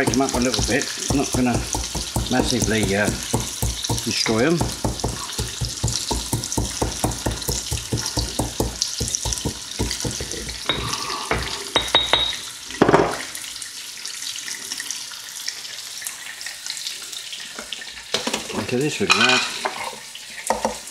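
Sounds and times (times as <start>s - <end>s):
loud knock: 0.0s - 10.5s
peppercorns being pounded: 0.0s - 10.9s
food frying in a pan: 0.0s - 20.9s.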